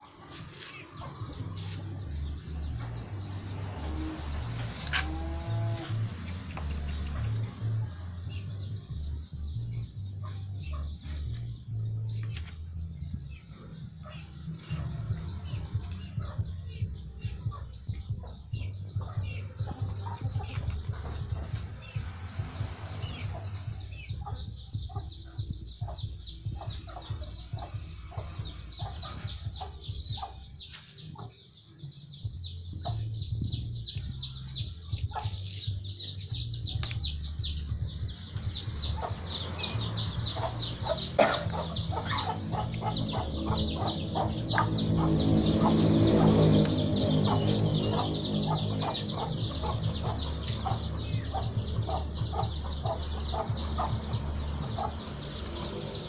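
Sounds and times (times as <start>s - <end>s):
chickens clucking: 0.0s - 3.3s, 13.5s - 31.4s, 32.7s - 56.0s.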